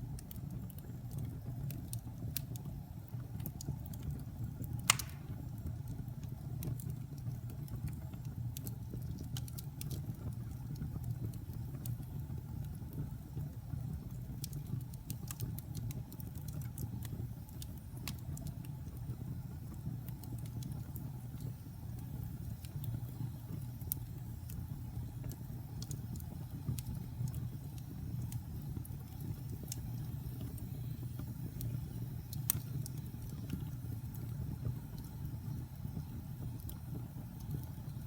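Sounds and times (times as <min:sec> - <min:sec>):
burning logs crackling and popping: 0:00.0 - 0:38.0
low rumble of flames: 0:00.0 - 0:38.0.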